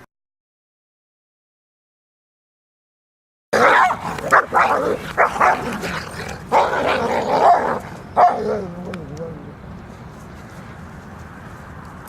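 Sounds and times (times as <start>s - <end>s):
dog barking: 3.6s - 8.6s.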